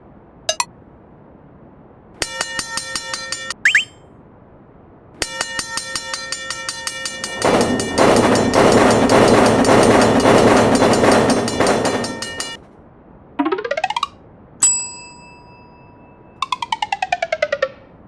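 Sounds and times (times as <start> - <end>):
railroad crossing bell ringing: 5.8 - 12.6, 14.6 - 16.2
train rumbling over rails: 5.9 - 12.6.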